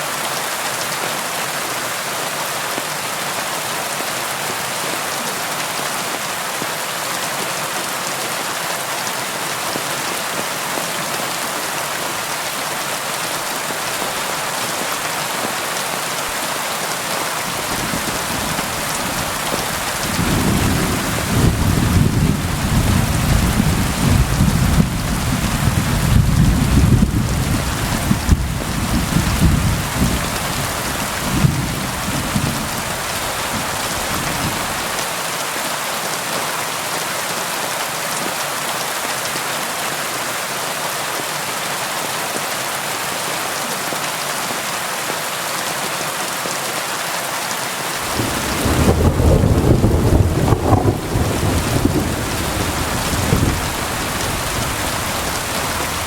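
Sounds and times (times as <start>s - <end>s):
steady rain: 0.0s - 56.0s
rolling thunder: 20.0s - 32.8s, 48.0s - 56.0s.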